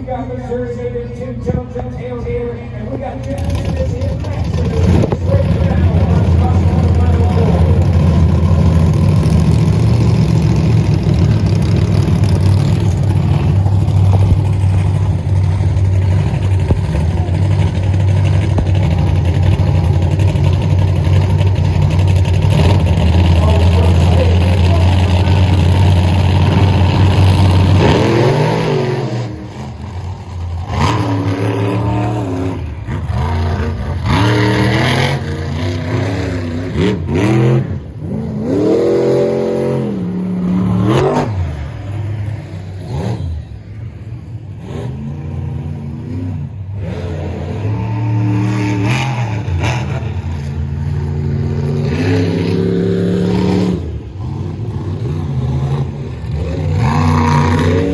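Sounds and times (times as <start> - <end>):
monster truck engines revving: 0.0 - 57.9.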